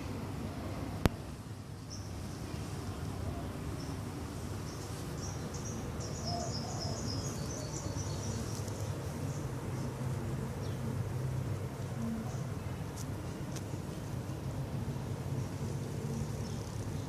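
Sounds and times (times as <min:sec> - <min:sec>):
steady low rumble: 0:07.2 - 0:17.0.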